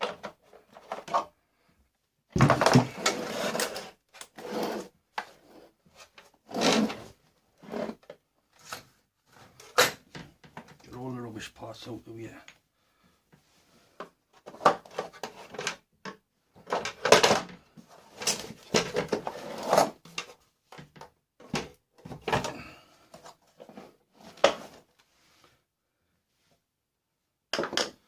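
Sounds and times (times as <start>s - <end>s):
plastic parts clattering: 0.0s - 1.3s, 2.4s - 4.4s, 14.3s - 23.7s.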